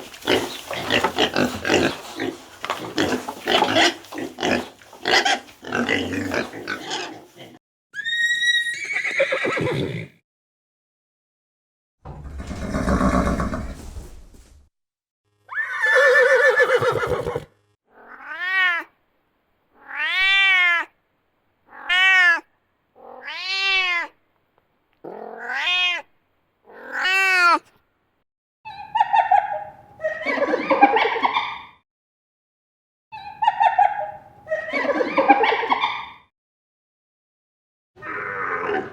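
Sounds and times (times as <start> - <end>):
low rough animal call: 12.1 - 14.3
cat meowing: 17.9 - 18.9, 19.8 - 21.0, 21.7 - 24.2, 25.0 - 26.1, 26.7 - 27.6.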